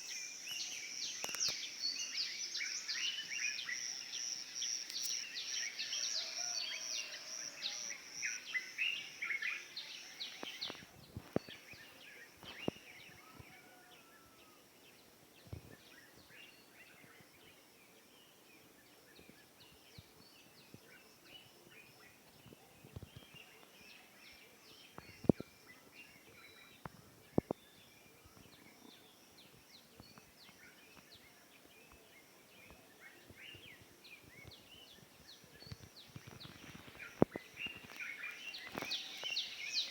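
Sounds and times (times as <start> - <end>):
small birds chirping: 0.0 - 6.1, 8.0 - 39.9.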